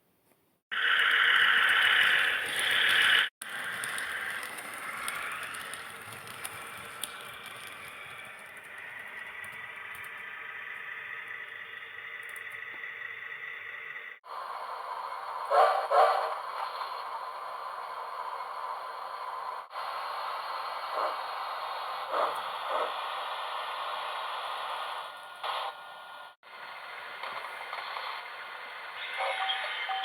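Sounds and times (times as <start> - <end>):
model train wheels rattling on rail: 0.8 - 14.0.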